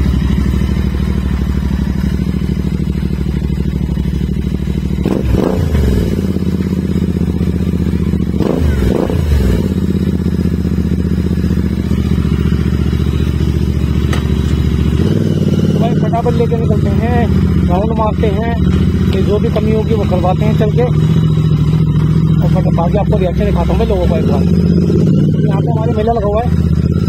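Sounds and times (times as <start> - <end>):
motorcycle engine idling: 0.0 - 27.0.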